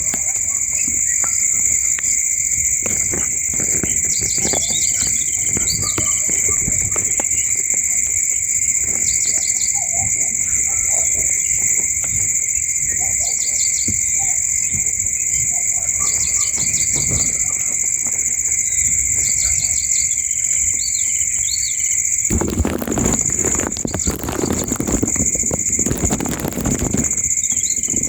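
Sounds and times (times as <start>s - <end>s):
rustling scraping noise: 2.5s - 7.8s, 22.2s - 28.0s.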